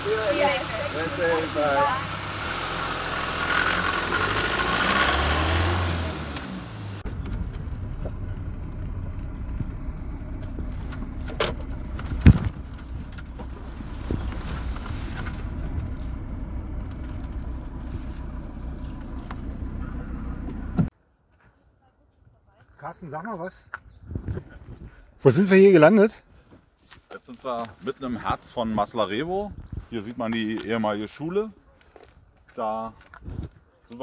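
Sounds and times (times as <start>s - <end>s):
car engine rumble inside cabin: 0.0s - 20.9s
road noise: 0.0s - 20.9s
van engine pulling away: 0.0s - 20.9s.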